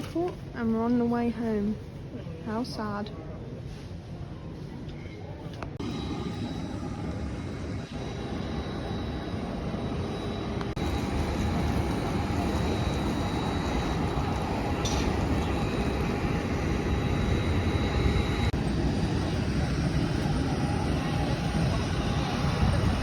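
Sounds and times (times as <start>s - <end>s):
high jet engine whine: 4.3s - 23.0s
jet engines rumbling: 5.8s - 23.0s.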